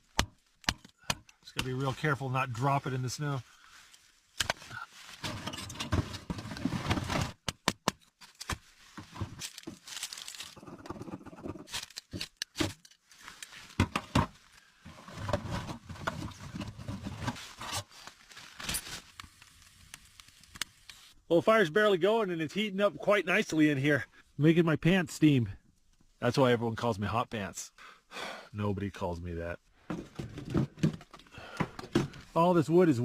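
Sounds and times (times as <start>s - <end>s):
firewood being handled: 0.0s - 21.2s
crinkling and scraping: 0.4s - 7.4s, 8.0s - 21.2s, 29.8s - 32.4s.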